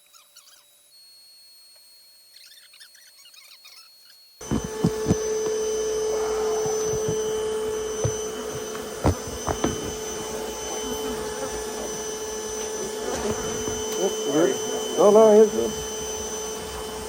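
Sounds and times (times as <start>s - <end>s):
sharp knocks and clicks: 4.4s - 5.7s, 6.5s - 7.4s, 8.0s - 10.2s.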